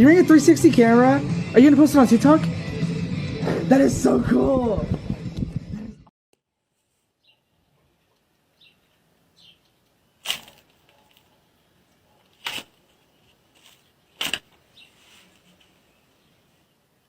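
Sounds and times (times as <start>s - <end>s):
sharp cracks: 10.2s - 10.8s, 14.2s - 14.6s.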